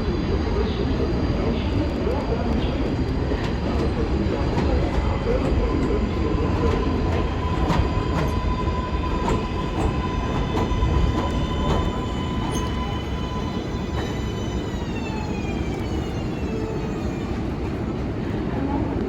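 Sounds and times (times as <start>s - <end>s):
subway train rumble: 0.0s - 19.0s.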